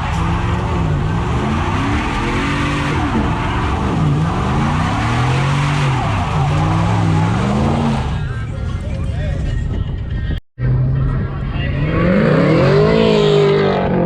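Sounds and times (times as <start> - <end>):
engine revving: 0.0 - 8.3, 11.7 - 14.0.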